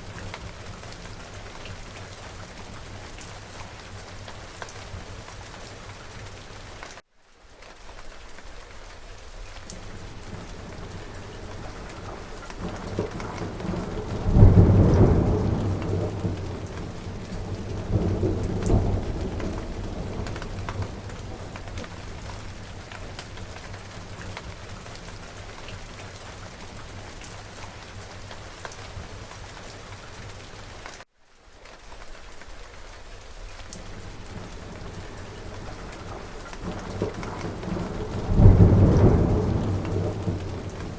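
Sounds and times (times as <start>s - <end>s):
steady rain: 0.0s - 40.9s
thunder rumbling: 9.8s - 27.0s, 33.8s - 40.9s.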